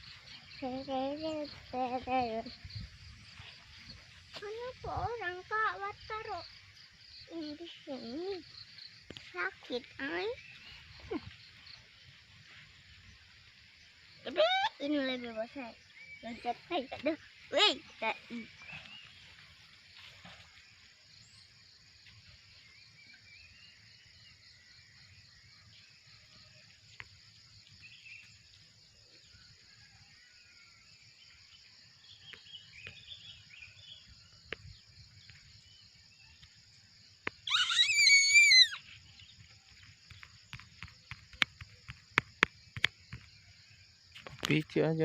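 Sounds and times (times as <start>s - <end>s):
high-pitched animal call: 37.4s - 38.8s.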